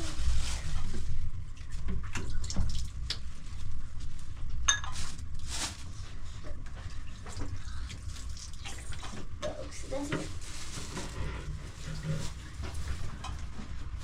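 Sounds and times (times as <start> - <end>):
water running and dripping: 6.8 - 10.1.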